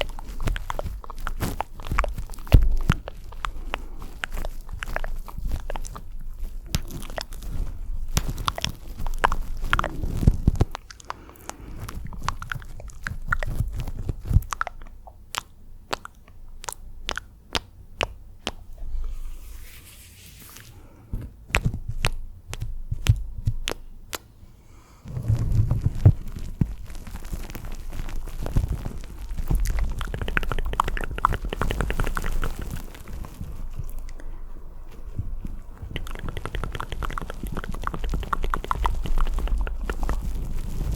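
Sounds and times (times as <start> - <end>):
wet lip and tongue clicks: 0.0 - 18.8, 21.5 - 24.3, 26.0 - 40.9
breathy hiss: 24.4 - 27.2.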